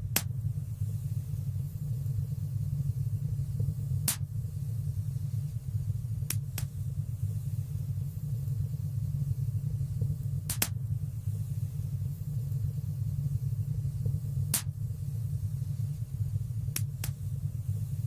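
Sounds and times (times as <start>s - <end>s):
fire crackling and popping: 10.5s - 10.8s, 14.5s - 14.8s, 16.7s - 17.2s.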